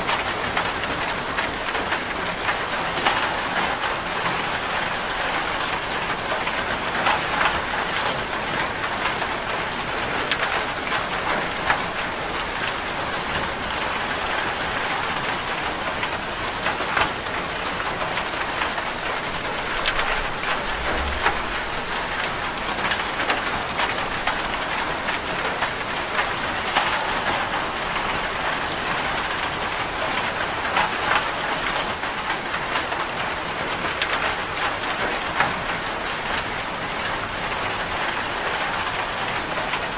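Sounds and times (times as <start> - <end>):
rain hissing: 17.3 - 25.6
brief low thud: 20.4 - 22.0.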